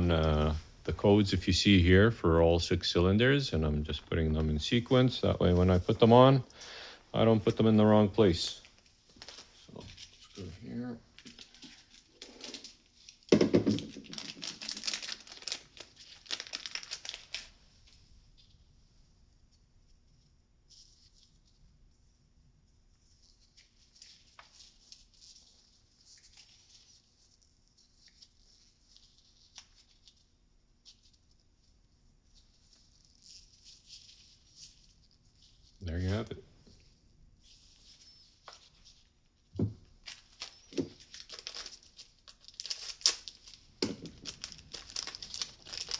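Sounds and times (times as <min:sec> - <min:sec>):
rustling of small parts: 0:03.9 - 0:18.7, 0:23.0 - 0:45.9
plastic packaging crinkling and tearing: 0:07.2 - 0:18.0, 0:39.9 - 0:45.9.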